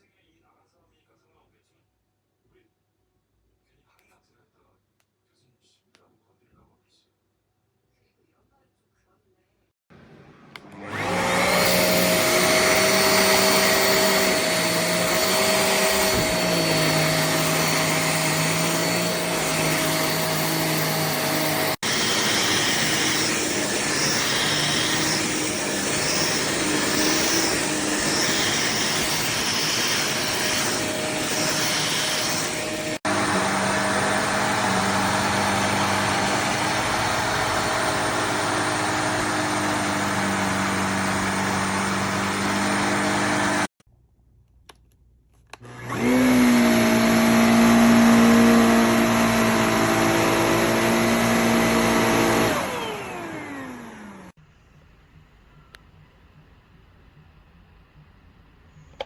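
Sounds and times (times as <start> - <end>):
handheld vacuum motor hum: 10.6 - 43.7, 45.6 - 54.3.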